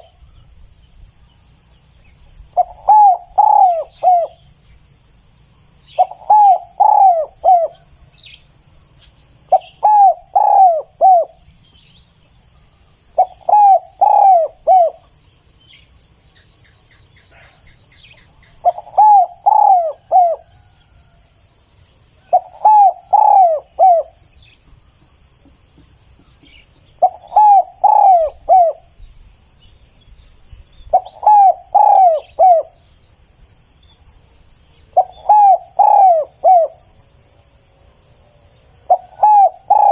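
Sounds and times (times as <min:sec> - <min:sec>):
insects trilling: 0:00.0 - 0:39.9
dove cooing: 0:02.6 - 0:04.5, 0:06.0 - 0:07.9, 0:09.5 - 0:11.4, 0:13.2 - 0:15.1, 0:18.5 - 0:20.7, 0:22.2 - 0:24.2, 0:26.4 - 0:28.9, 0:30.9 - 0:32.8, 0:34.9 - 0:36.8, 0:38.8 - 0:39.9.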